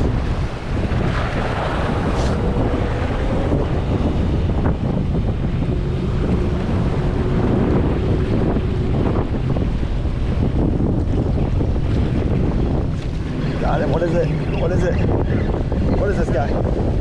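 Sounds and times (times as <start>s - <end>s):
ocean surf: 0.0s - 17.0s
wind buffeting microphone: 0.0s - 17.0s.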